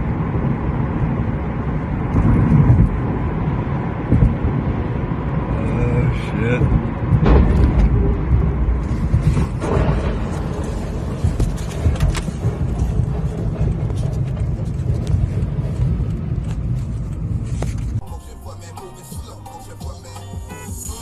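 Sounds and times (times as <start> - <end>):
vehicle road and engine rumble: 0.0 - 21.0
sharp knocks: 7.2 - 13.9.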